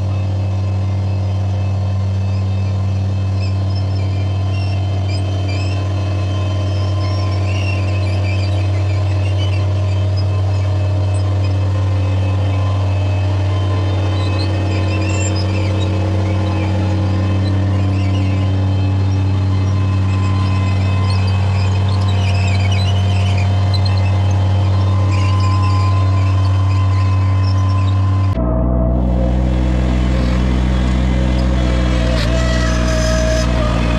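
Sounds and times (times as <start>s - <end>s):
compact loader engine running: 0.0s - 33.9s
faint high squeaks: 3.4s - 33.9s.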